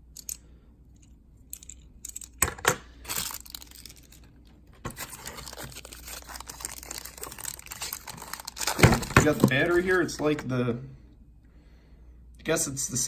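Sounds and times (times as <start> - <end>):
wrapping crinkling and tearing: 3.0 - 10.2
packaging clicks and knocks: 4.8 - 9.8.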